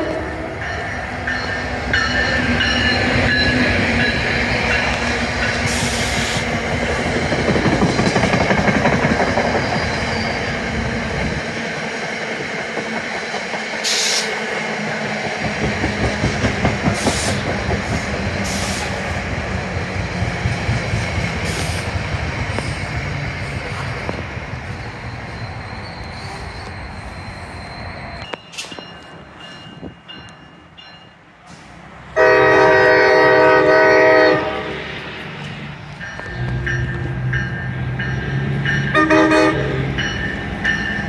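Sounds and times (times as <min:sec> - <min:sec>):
train wheels rumbling on rail: 0:00.0 - 0:41.0
wheels clacking over rail joints: 0:00.6 - 0:09.9, 0:15.0 - 0:18.6.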